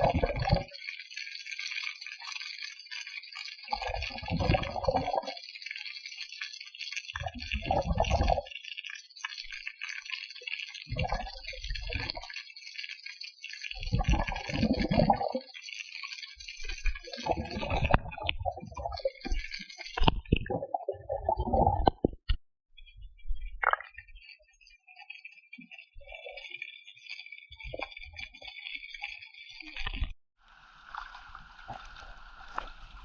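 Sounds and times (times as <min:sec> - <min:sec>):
water hissing: 0:30.4 - 0:33.0
muffled water surge: 0:30.5 - 0:33.0.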